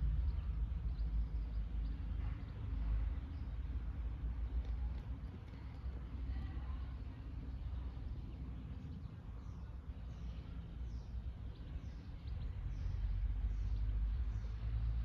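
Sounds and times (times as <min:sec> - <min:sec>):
low traffic-like rumble: 0:00.0 - 0:15.0.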